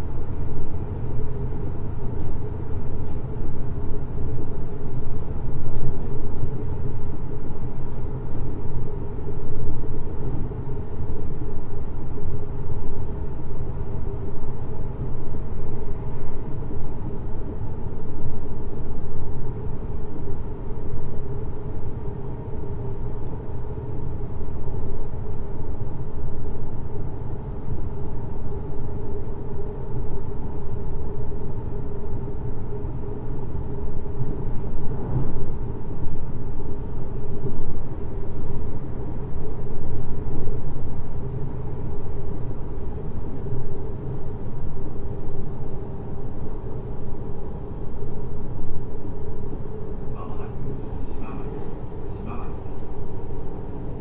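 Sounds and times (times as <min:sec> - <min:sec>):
steady train hum: 0:00.0 - 0:54.0
train wheels rumbling on rails: 0:34.4 - 0:36.0.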